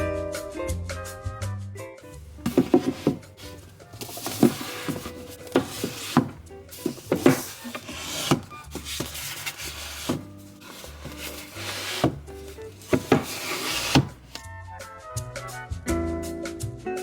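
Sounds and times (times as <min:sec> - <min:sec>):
book covers rubbing: 0:02.3 - 0:14.4
books knocking when set down: 0:02.3 - 0:14.4.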